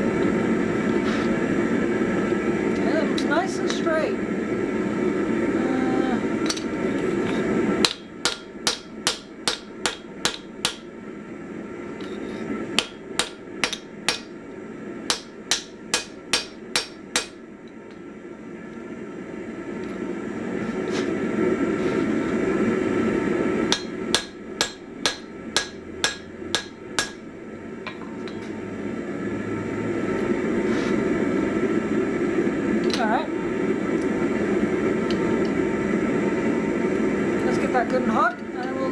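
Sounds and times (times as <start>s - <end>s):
hammer striking steel on anvil: 7.8s - 10.9s, 12.8s - 14.4s, 15.1s - 17.4s, 23.7s - 27.3s.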